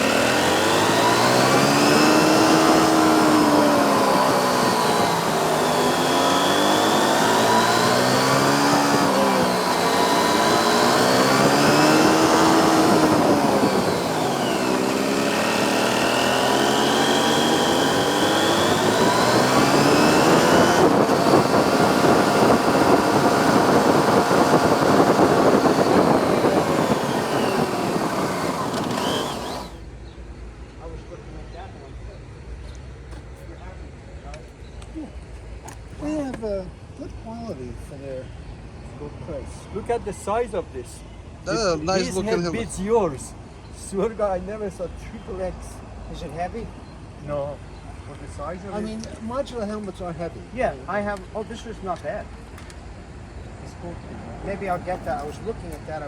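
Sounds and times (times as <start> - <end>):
motorcycle engine revving: 0.0 - 29.8.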